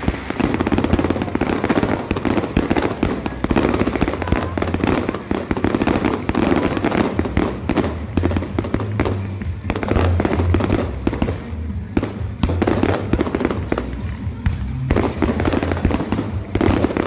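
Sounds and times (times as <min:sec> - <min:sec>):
music: 0:00.0 - 0:17.0
rapid bangs and crackles: 0:00.0 - 0:17.0
steady low rumble: 0:00.0 - 0:17.0.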